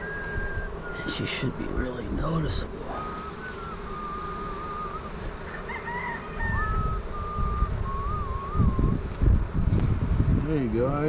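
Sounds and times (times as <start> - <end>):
bird calling in wavering notes: 0.0 - 9.0
low rumbling noise: 6.4 - 11.0.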